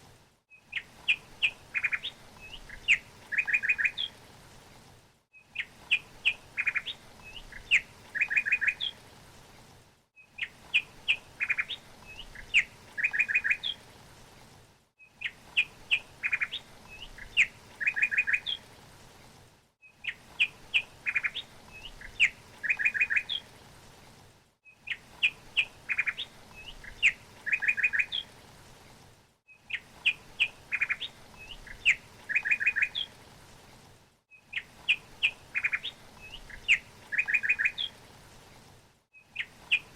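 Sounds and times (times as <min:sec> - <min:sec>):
songbird chirping and trilling: 0:00.6 - 0:04.2, 0:05.4 - 0:09.0, 0:10.3 - 0:13.8, 0:15.1 - 0:18.6, 0:20.0 - 0:23.5, 0:24.7 - 0:28.3, 0:29.6 - 0:33.1, 0:34.4 - 0:38.0, 0:39.2 - 0:39.9.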